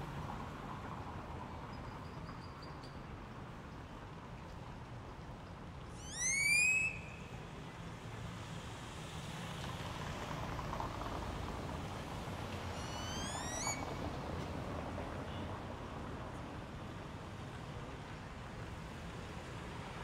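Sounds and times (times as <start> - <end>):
bird whistling: 6.0 - 7.2, 12.8 - 13.9.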